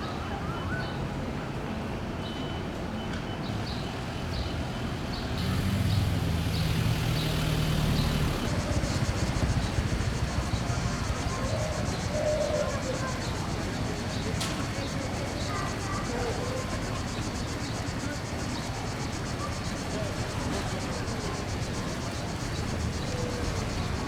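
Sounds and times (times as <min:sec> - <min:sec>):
street traffic: 0:01.2 - 0:24.0
vehicle engine passing close: 0:05.3 - 0:14.4, 0:16.8 - 0:24.0
fast high-pitched pulsing: 0:05.4 - 0:13.8.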